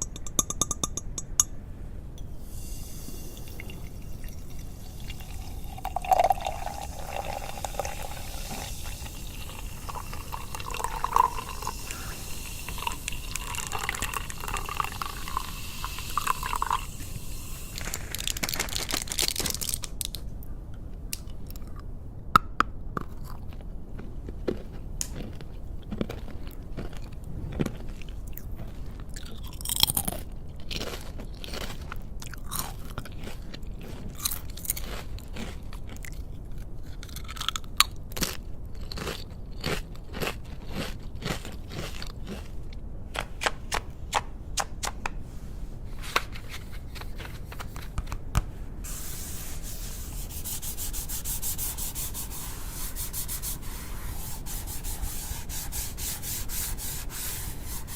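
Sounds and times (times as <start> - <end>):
crisp crunches and crackles: 17.8 - 20.3.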